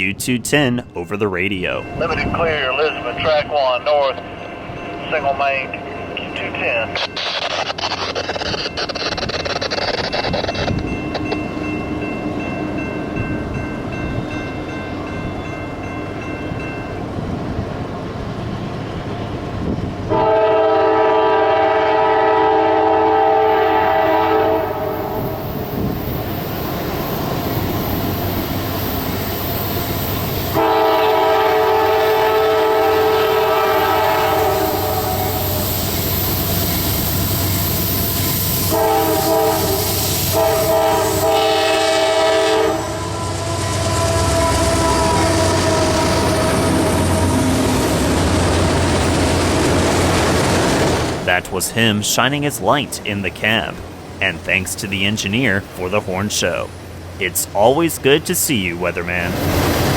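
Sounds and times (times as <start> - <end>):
freight train rumbling: 0.0 - 59.9
locomotive air horn blasts: 20.1 - 25.4, 30.5 - 35.7, 38.4 - 47.8.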